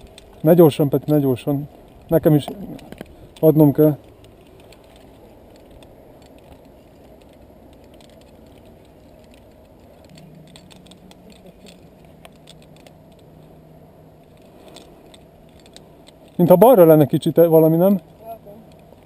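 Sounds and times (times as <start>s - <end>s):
faint low hum: 0.0s - 19.0s
light rustling: 0.0s - 19.0s
steady low rumble: 0.0s - 19.0s
small clicks: 1.8s - 13.6s.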